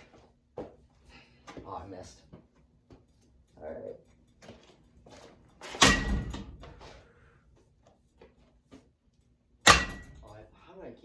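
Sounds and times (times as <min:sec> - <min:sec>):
strikes on ceiling fan: 0:05.8 - 0:06.5, 0:09.6 - 0:10.3.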